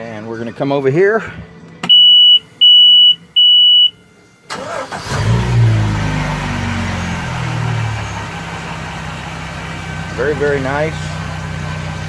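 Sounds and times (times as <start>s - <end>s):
warning beep: 1.8s - 4.0s
boat engine starting and idling: 4.4s - 12.0s.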